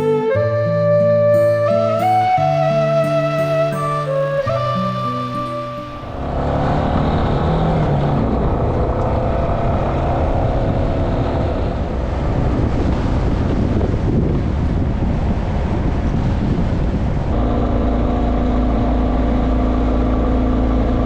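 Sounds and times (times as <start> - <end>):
wind noise: 0.0 - 21.0
motorcycle engine running: 17.1 - 21.0.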